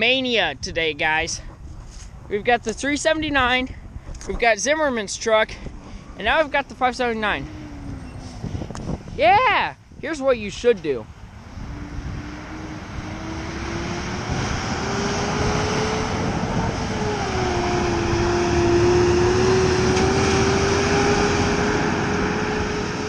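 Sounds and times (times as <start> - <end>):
tyre and road noise: 0.0 - 23.0
truck engine drone: 5.4 - 9.2, 9.8 - 23.0.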